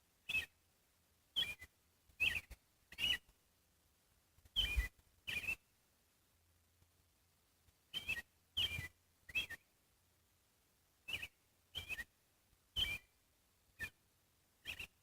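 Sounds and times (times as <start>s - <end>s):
bird chirping: 0.2s - 0.6s, 1.3s - 3.3s, 4.5s - 5.7s, 7.9s - 9.7s, 11.0s - 13.2s, 13.8s - 14.0s, 14.6s - 15.0s.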